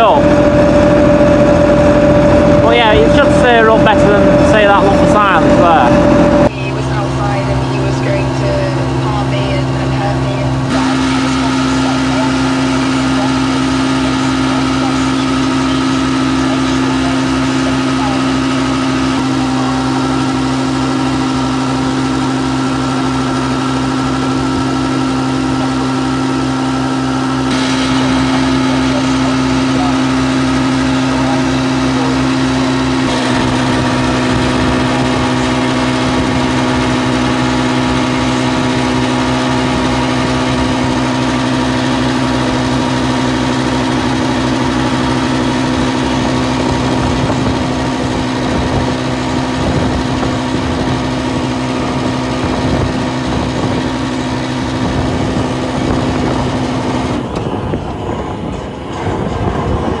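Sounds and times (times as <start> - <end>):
steady whine: 0.0 - 60.0
tractor diesel engine running: 0.0 - 60.0.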